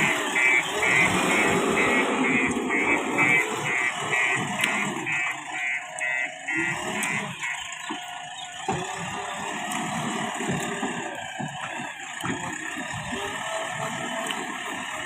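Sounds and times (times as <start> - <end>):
reversing alarm beeping: 0.0 - 9.6
machine rumbling: 0.0 - 15.0.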